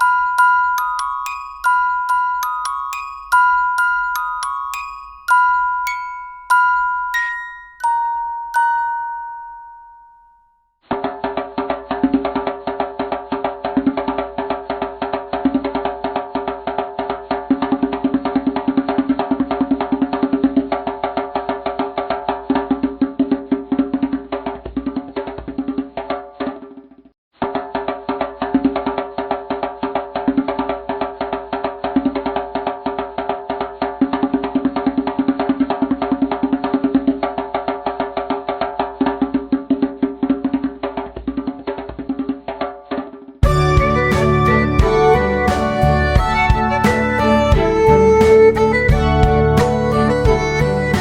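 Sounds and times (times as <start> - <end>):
background music with percussive beat: 0.0 - 9.4, 10.9 - 51.0
background music with fast beat: 43.4 - 51.0.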